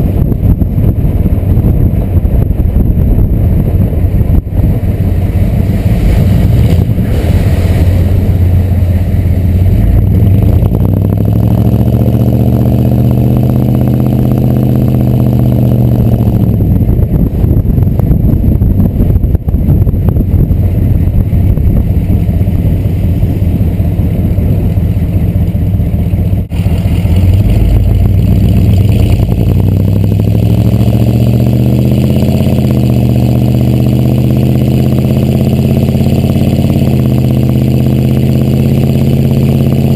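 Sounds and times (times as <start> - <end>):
diesel truck engine driving: 0.0 - 39.9.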